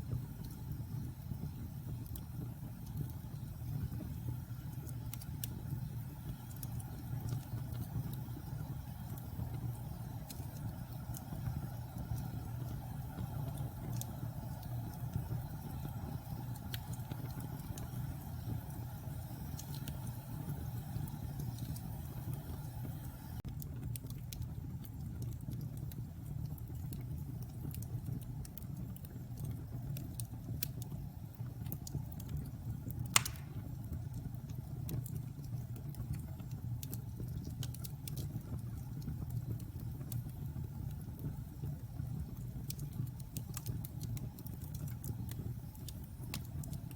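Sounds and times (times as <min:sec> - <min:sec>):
fire crackling: 0:00.0 - 0:46.9
low rumble of flames: 0:00.0 - 0:46.9
loud fire pop: 0:33.2 - 0:33.7.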